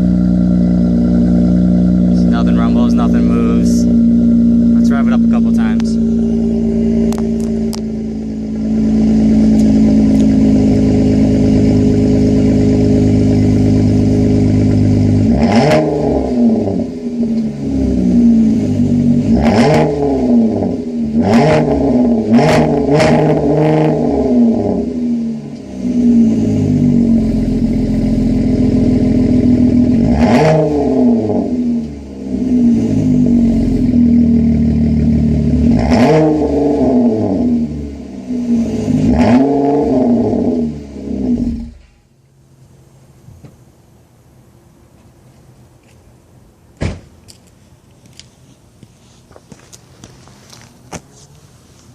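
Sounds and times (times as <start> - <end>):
car engine idling and revving: 0.0 - 51.9.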